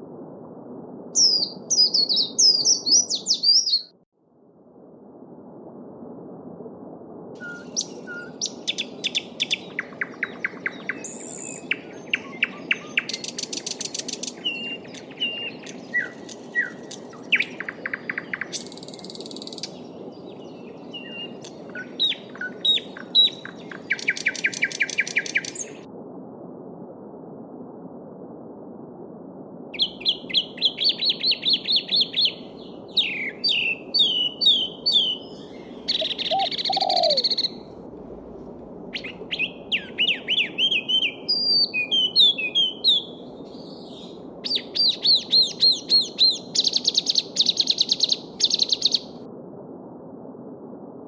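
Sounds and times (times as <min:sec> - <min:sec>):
songbirds singing: 0:01.2 - 0:03.9, 0:07.4 - 0:25.8, 0:29.8 - 0:37.6, 0:38.9 - 0:49.1.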